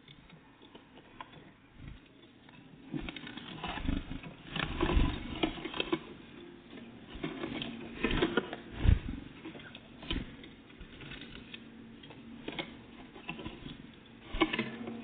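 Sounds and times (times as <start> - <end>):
heavy thumps: 8.8 - 9.3.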